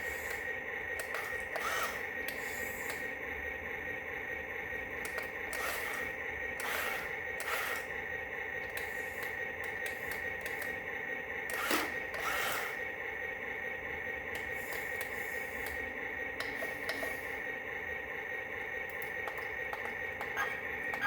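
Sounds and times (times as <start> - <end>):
small electric motor whining: 0.0 - 3.0, 5.5 - 7.9, 11.5 - 12.8.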